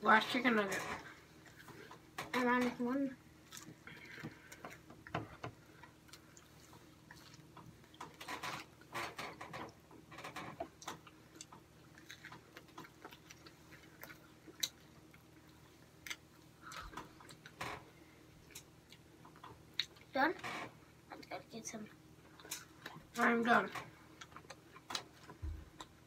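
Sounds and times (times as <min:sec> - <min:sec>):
person chewing food: 0:03.4 - 0:08.9, 0:10.6 - 0:17.6, 0:18.2 - 0:20.1, 0:22.2 - 0:23.2, 0:24.0 - 0:26.0.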